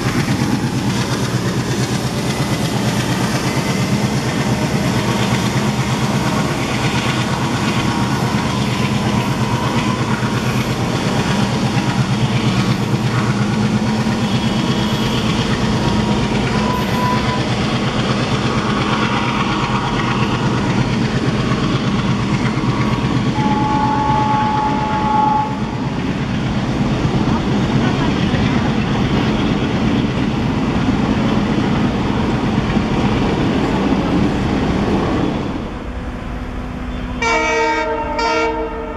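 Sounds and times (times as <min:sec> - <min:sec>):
diesel locomotive engine: 0:00.0 - 0:38.9
wheel and rail noise: 0:00.0 - 0:38.9
high-pitched squeals: 0:06.3 - 0:11.5, 0:14.0 - 0:20.4.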